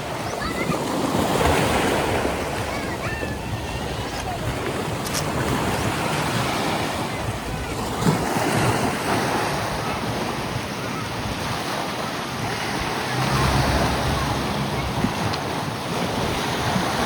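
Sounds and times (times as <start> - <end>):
sea waves rushing: 0.0 - 17.0
wind: 0.0 - 17.0.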